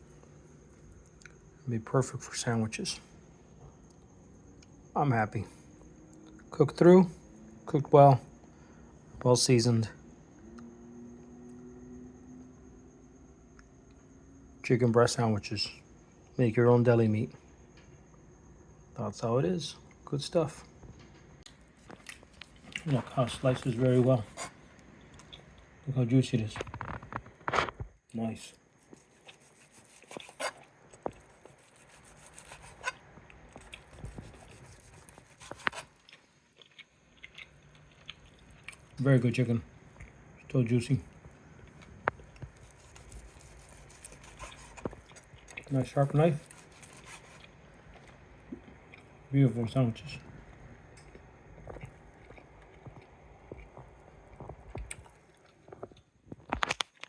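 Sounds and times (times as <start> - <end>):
knife slicing meat: 23.7 - 24.6, 28.9 - 30.6, 31.2 - 33.0, 33.6 - 36.0, 42.6 - 45.0, 46.0 - 47.4.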